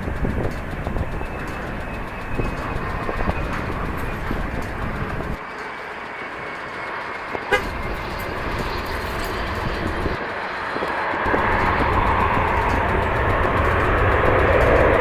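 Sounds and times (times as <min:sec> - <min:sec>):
wind buffeting microphone: 0:00.0 - 0:05.4, 0:07.6 - 0:10.2, 0:11.3 - 0:15.0
jet engine noise with high whine: 0:00.0 - 0:15.0.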